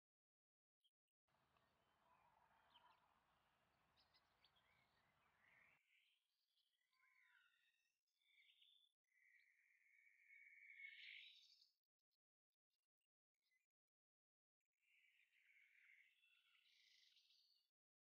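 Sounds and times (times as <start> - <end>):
faint bird chirps: 0.8 - 11.9, 14.8 - 17.8.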